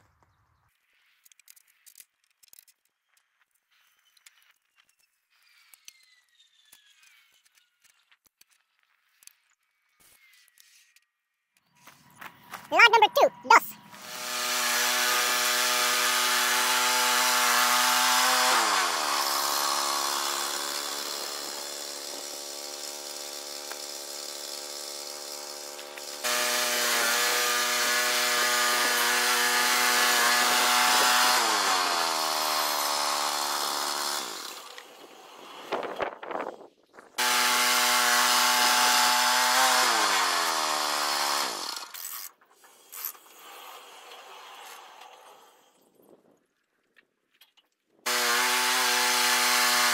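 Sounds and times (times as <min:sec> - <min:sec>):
bandsaw blade sawing log: 0:12.8 - 0:36.2, 0:37.2 - 0:45.6, 0:48.1 - 0:49.9
sawmill engine running: 0:13.8 - 0:35.7, 0:37.2 - 0:42.0, 0:48.1 - 0:49.9.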